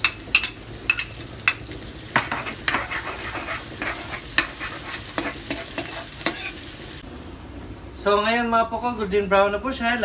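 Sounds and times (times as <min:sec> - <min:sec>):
spoon scraping the pan: 0:00.0 - 0:06.7
onion and garlic sizzling in oil: 0:00.0 - 0:10.0.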